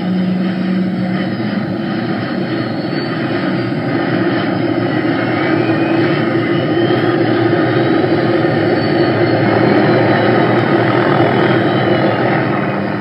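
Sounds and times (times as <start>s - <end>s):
aircraft engines running: 0.0s - 13.0s.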